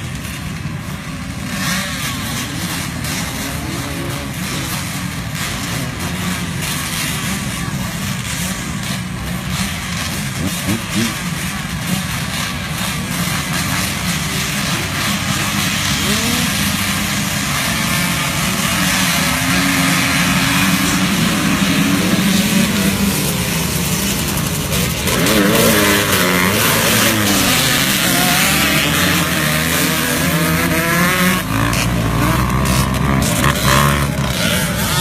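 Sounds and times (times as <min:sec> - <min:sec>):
motocross bike engines revving: 0:00.0 - 0:35.0.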